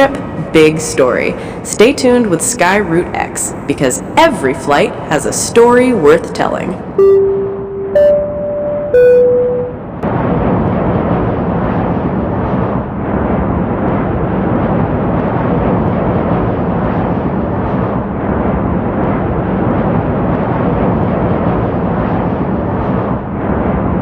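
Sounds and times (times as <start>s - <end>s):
low drone: 4.9s - 24.0s
jet engines roaring: 10.0s - 24.0s.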